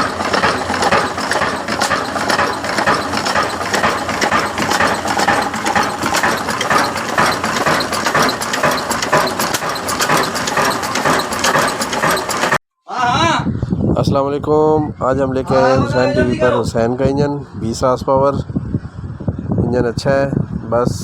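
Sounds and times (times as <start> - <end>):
diesel engine clattering: 0.0 - 12.6.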